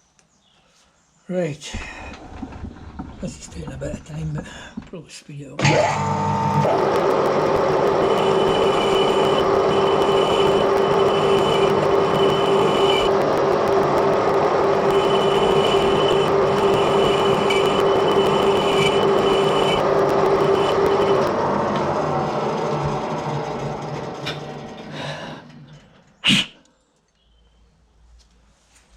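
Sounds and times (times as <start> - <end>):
high whine of lathe cutting: 5.6 - 24.8
metal lathe hum: 5.6 - 24.9.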